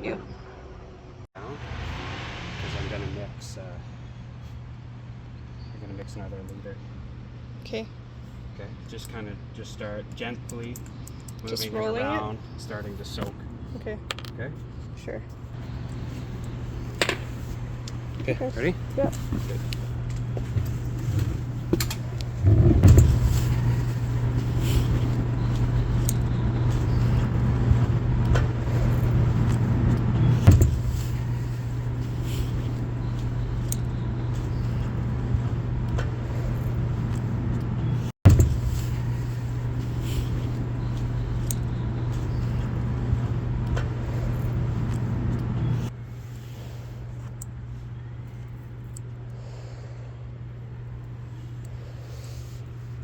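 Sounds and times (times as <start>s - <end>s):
low mechanical hum: 0.0s - 53.0s
scattered clicks and knocks: 20.5s - 36.2s, 38.3s - 39.2s.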